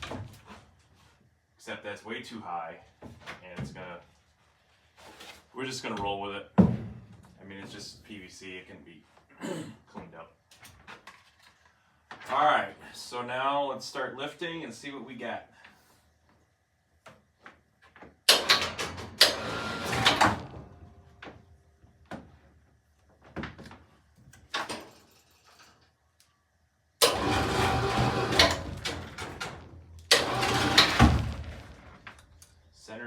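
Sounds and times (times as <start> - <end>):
electric hoist motor running: 18.3 - 20.6, 27.0 - 31.9.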